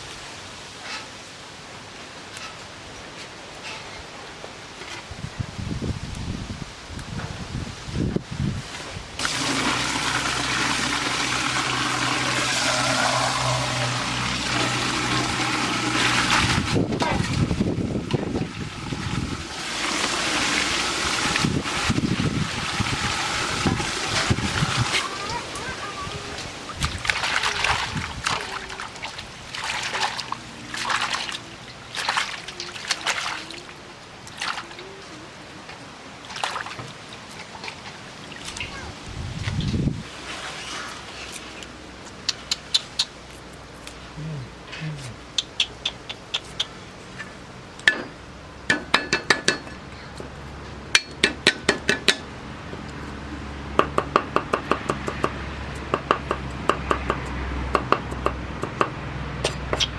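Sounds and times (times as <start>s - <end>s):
water running with low hum: 8.0s - 42.1s.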